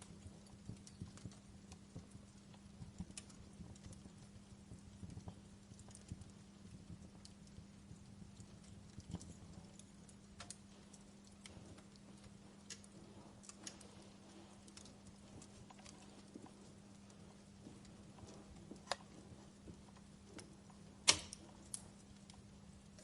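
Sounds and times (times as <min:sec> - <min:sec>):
steady low hum: 0:00.0 - 0:23.0
wood fire crackling: 0:00.0 - 0:23.0
sharp pops: 0:21.0 - 0:21.4.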